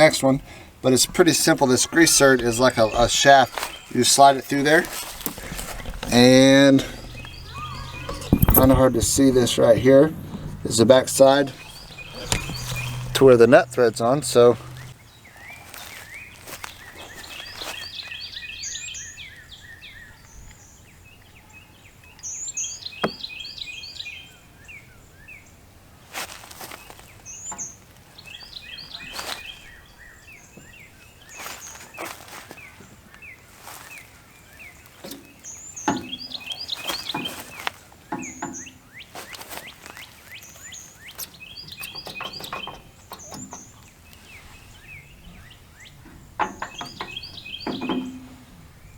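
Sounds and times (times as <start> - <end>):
songbird singing: 0.0 - 25.9, 26.6 - 48.9
metal tools clanking: 4.6 - 14.9, 41.2 - 43.9, 46.0 - 48.6.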